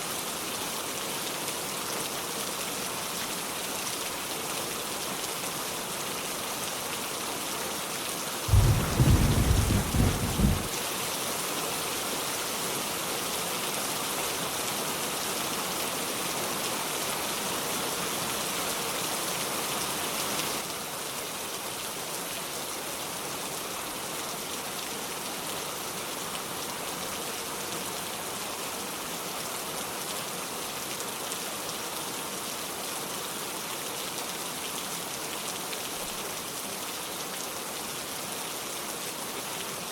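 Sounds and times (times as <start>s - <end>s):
low thunder rumble: 8.5s - 10.7s
heavy rain: 8.5s - 10.8s.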